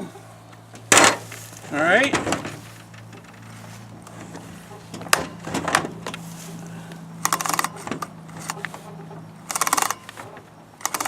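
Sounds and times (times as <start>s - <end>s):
chainsaw chain links clicking: 7.2s - 8.8s, 9.4s - 11.0s.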